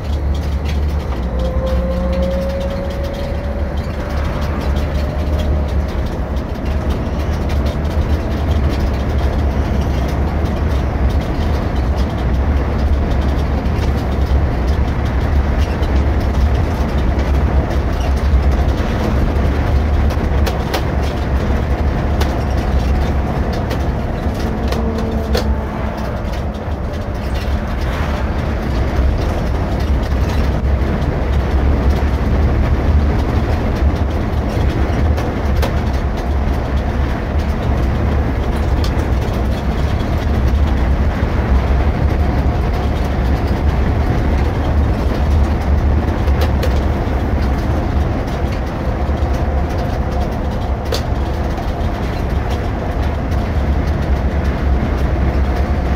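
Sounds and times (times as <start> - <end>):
cabin clicks and rattles: 0.0 - 41.2
coach diesel engine drone: 0.0 - 55.9
road noise: 0.0 - 55.9.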